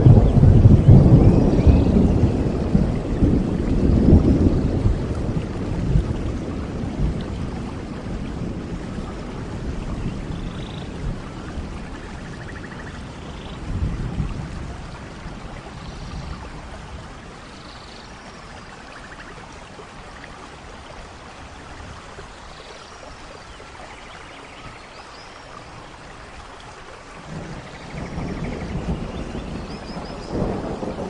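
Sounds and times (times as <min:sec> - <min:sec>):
thunder rumble: 0:00.0 - 0:17.5, 0:27.2 - 0:31.0
steady rain: 0:00.0 - 0:31.0.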